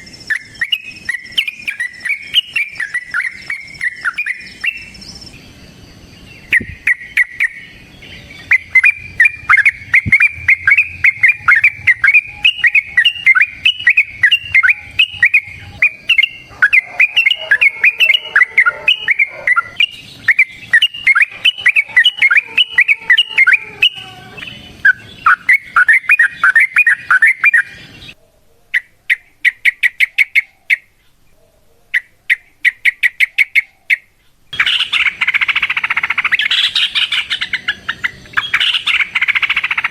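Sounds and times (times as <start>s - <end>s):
bulbul singing bubbly notes: 8.4s - 27.0s.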